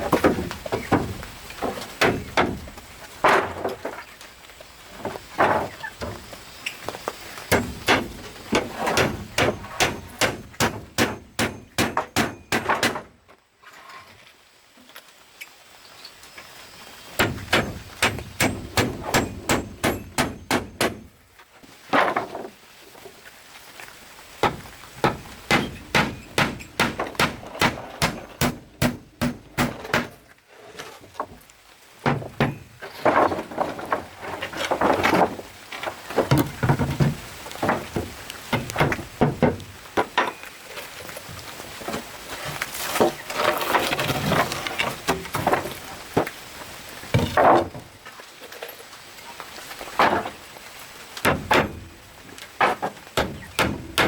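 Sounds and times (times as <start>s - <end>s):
tool striking wood: 7.5s - 13.1s, 17.2s - 21.1s, 24.4s - 30.2s, 52.8s - 54.0s.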